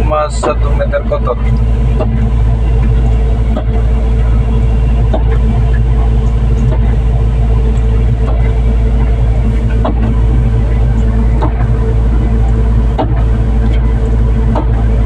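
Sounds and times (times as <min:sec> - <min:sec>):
excavator diesel engine droning: 0:00.0 - 0:15.0.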